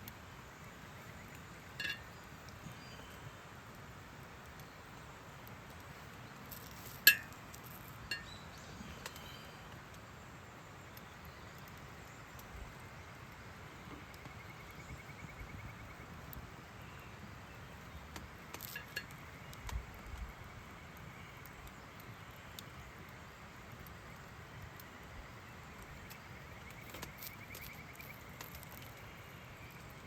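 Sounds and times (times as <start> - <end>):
faint clicks: 1.2 - 10.1, 10.9 - 14.8, 18.1 - 20.3
sharp ringing clink: 7.1 - 7.3.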